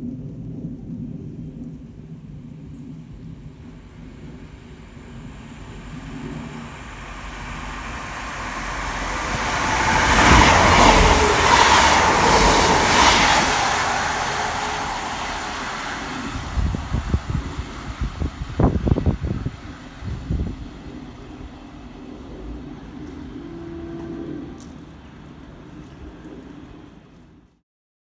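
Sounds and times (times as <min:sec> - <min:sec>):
train passing: 0:01.6 - 0:27.6.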